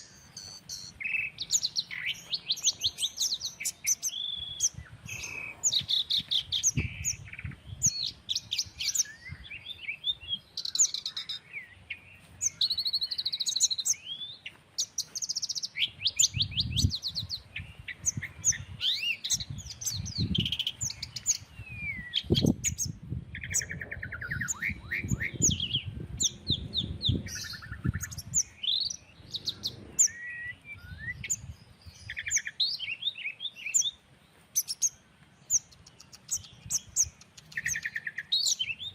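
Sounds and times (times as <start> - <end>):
small birds chirping: 0.0 - 38.9
wind rumble on microphone: 4.2 - 10.5, 15.8 - 32.4.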